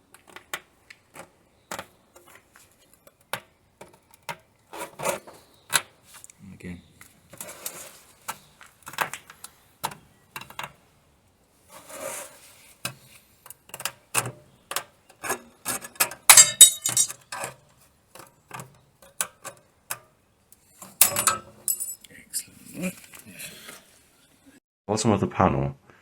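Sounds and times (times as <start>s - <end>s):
metallic clattering and ringing: 16.3s - 17.1s, 21.0s - 22.0s
sheet metal knocks and clinks: 16.3s - 17.1s, 21.0s - 22.0s.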